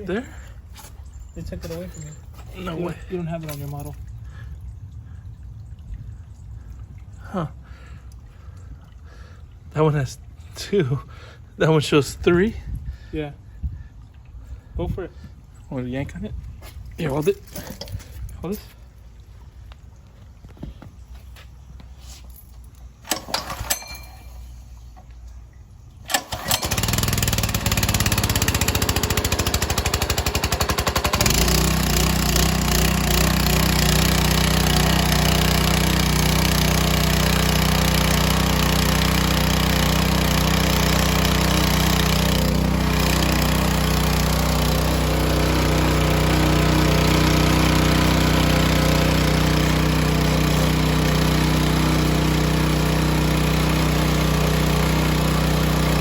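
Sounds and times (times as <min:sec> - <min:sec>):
recoil starter yanks: 0:22.2 - 0:56.0
pressure washer engine running: 0:26.1 - 0:56.0.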